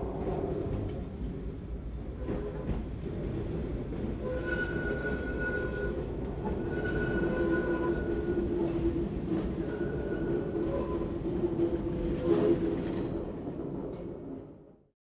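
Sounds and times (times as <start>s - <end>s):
train wheels rumbling on rails: 0.0s - 14.7s
train wheels squealing: 4.2s - 11.2s.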